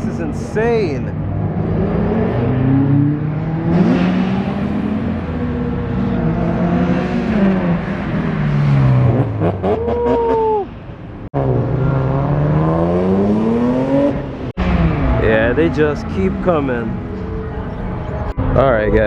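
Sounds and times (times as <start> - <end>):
car engine revving: 0.1 - 10.2, 11.3 - 18.2
car accelerating away: 1.1 - 10.6, 11.4 - 17.2.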